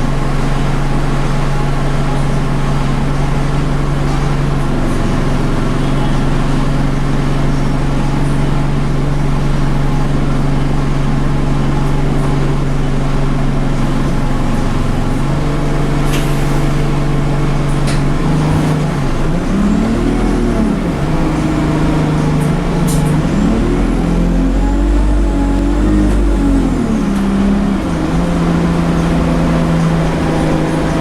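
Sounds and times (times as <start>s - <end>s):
bus diesel engine: 0.0s - 31.0s
short air hisses: 16.0s - 16.9s.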